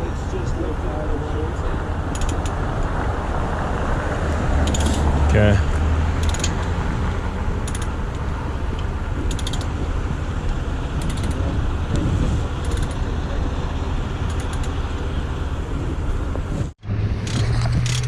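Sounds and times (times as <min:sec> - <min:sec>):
heavy truck engine running: 0:00.0 - 0:18.0
ratchet pawl clicking: 0:02.1 - 0:02.5, 0:04.6 - 0:05.0, 0:06.2 - 0:06.7, 0:07.6 - 0:07.9, 0:09.3 - 0:09.7, 0:11.0 - 0:11.4, 0:12.6 - 0:13.0, 0:14.3 - 0:14.8.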